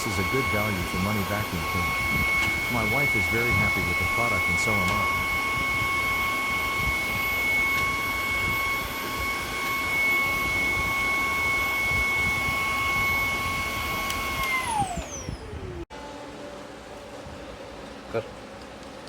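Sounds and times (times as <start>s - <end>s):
rushing air: 0.0s - 13.2s
vacuum cleaner motor whine: 0.0s - 18.1s.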